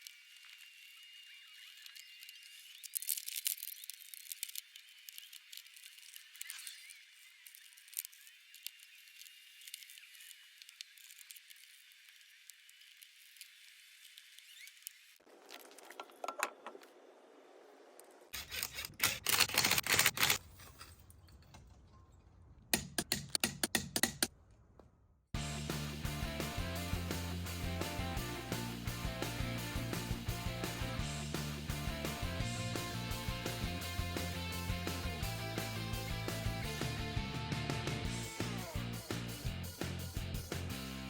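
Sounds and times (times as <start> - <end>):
music: 25.4 - 41.0.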